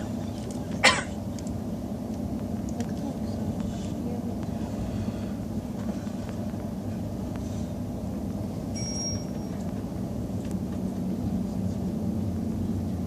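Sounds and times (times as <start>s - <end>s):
train rumble inside carriage: 0.0s - 13.0s
short thin high tone: 8.8s - 9.5s.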